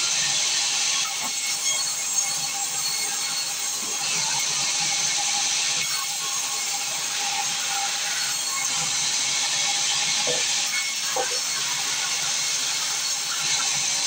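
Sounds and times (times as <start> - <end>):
sawmill saw cutting log: 0.0 - 14.0.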